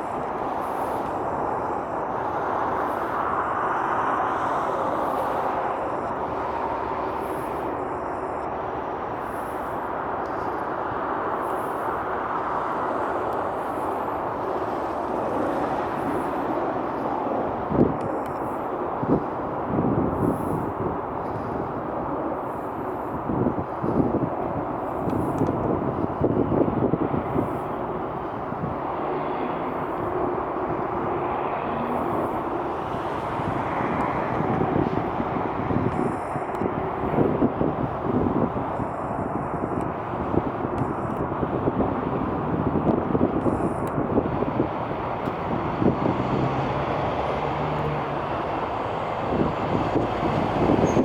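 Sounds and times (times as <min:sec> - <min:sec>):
jet engine rushing: 0:00.0 - 0:51.0
faint drifting tones: 0:27.2 - 0:51.0.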